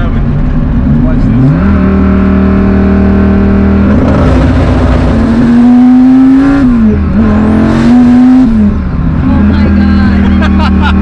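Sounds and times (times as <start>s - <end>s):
car engine pulling hard: 0.0s - 11.0s.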